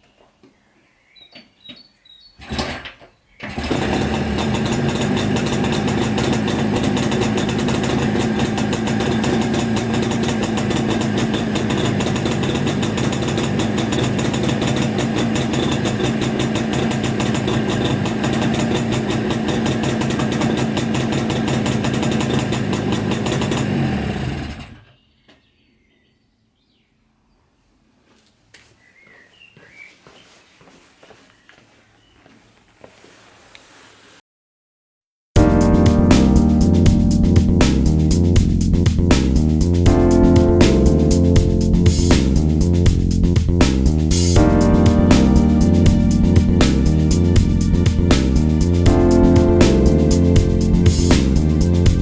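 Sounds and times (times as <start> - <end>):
motorcycle engine running: 3.5 - 24.8, 35.4 - 52.0.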